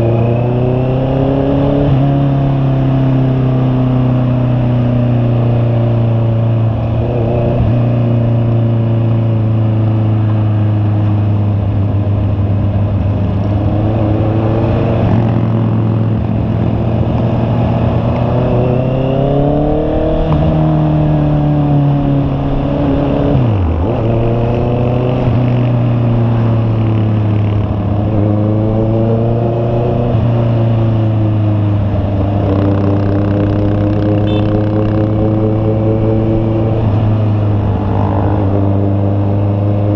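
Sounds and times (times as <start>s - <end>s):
motorcycle engine running: 30.4s - 39.9s.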